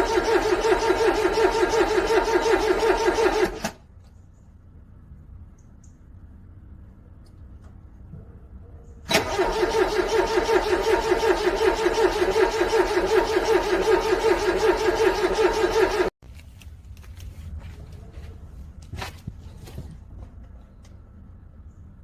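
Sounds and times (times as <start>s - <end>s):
car engine cranking on starter: 0.0s - 3.8s, 9.1s - 16.1s.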